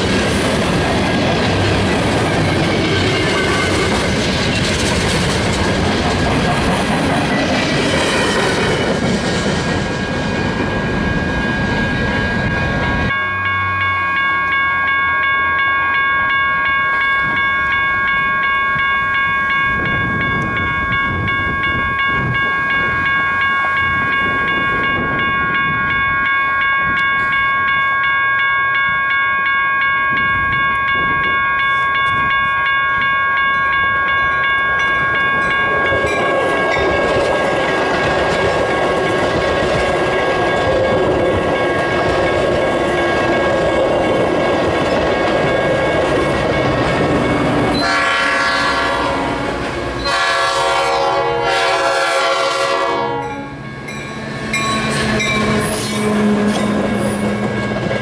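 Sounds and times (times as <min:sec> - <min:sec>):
train cars clattering on rails: 0:00.0 - 0:11.2, 0:34.4 - 0:58.0
diesel locomotive engine drone: 0:00.0 - 0:58.0
train horn blast: 0:47.8 - 0:53.6.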